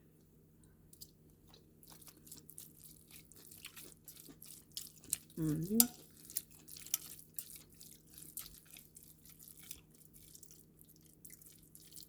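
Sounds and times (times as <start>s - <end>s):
cooking clicks and crackles: 4.6s - 9.9s.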